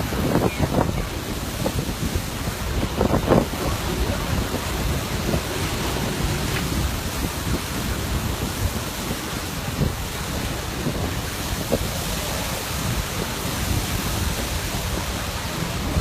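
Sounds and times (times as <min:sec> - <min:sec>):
steady rushing storm wind: 0:00.0 - 0:16.0
low rumble: 0:02.5 - 0:08.4.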